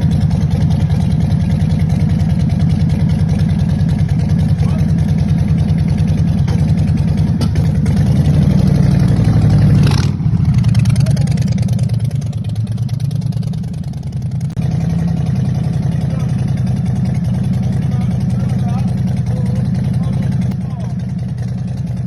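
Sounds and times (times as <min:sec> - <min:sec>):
exhaust crack: 0:00.0 - 0:22.0
motorcycle engine idling: 0:00.0 - 0:22.0.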